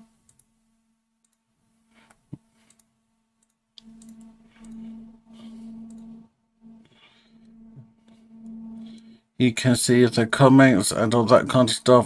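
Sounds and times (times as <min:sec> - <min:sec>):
computer mouse clicking: 0:00.3 - 0:00.5, 0:02.0 - 0:04.9, 0:05.8 - 0:06.1
steady low hum: 0:03.8 - 0:12.0.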